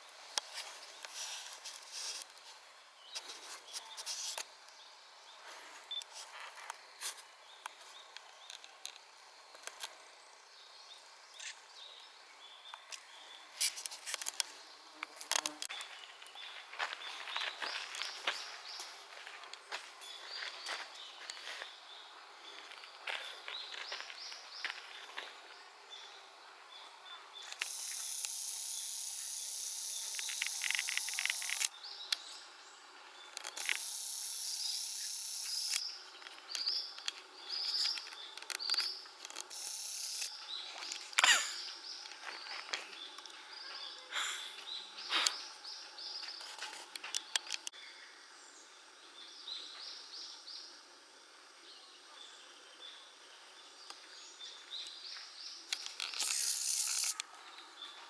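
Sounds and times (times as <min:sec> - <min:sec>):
high hissing buzz: 0:27.4 - 0:32.8, 0:33.5 - 0:36.9, 0:39.5 - 0:42.0, 0:55.8 - 0:57.2.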